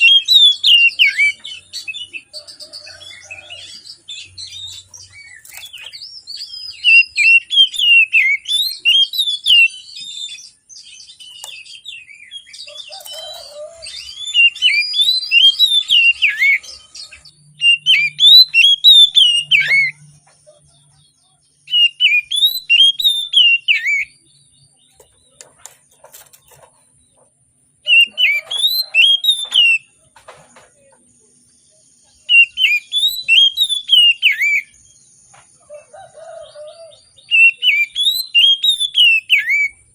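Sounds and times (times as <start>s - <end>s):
bird singing whistled phrases: 0.0s - 20.1s, 21.6s - 24.2s, 27.8s - 29.9s, 32.2s - 34.8s, 36.9s - 39.9s.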